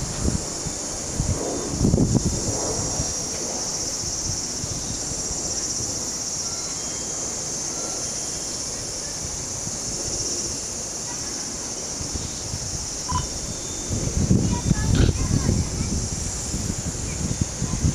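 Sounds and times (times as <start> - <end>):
wind buffeting microphone: 0.0 - 6.2, 11.6 - 17.9
high-pitched insect chorus: 0.0 - 17.9.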